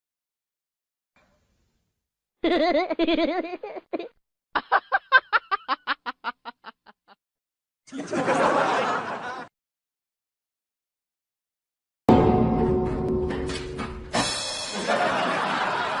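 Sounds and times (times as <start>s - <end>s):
person laughing: 2.4s - 7.2s.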